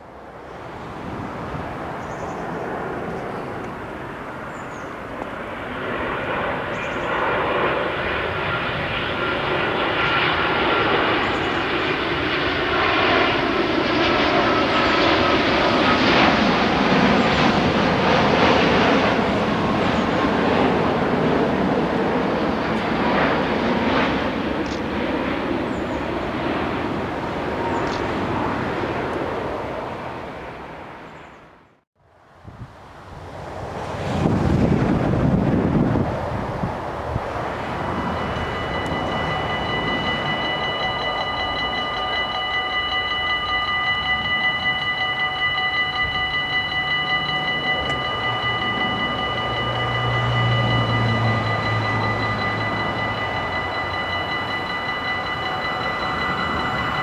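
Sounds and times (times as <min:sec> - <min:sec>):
thin high whine: 0:02.0 - 0:29.3, 0:36.3 - 0:57.0
train wheels rumbling on rails: 0:33.4 - 0:57.0.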